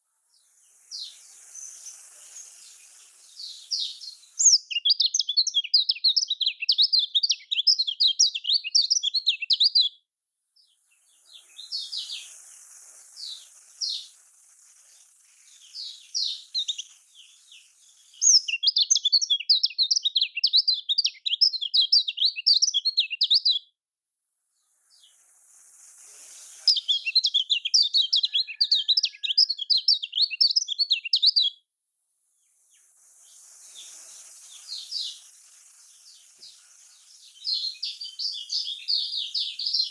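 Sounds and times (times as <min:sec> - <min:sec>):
faint hiss: 0:00.0 - 0:06.4, 0:10.5 - 0:20.2, 0:24.3 - 0:31.2, 0:31.8 - 0:39.9
bird twittering song: 0:00.2 - 0:10.0, 0:10.6 - 0:23.7, 0:24.6 - 0:31.6, 0:32.4 - 0:39.9
single bird chirps: 0:26.7 - 0:31.6.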